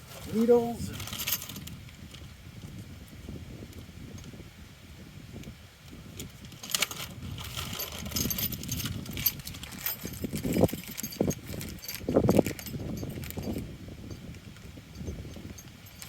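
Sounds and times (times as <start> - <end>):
metal parts clinking: 15.0 - 16.0.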